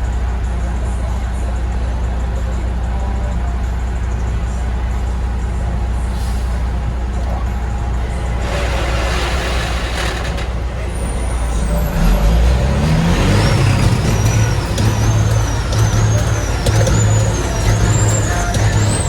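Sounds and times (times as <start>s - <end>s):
truck diesel engine revving: 3.6s - 19.0s
thin high whistle: 10.8s - 19.0s.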